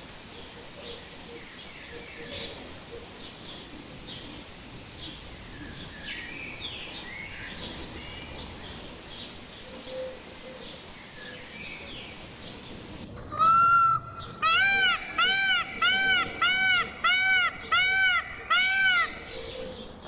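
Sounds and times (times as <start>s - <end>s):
outdoor background hiss: 0.0s - 20.0s
loud bird calls rising and falling: 13.4s - 19.4s.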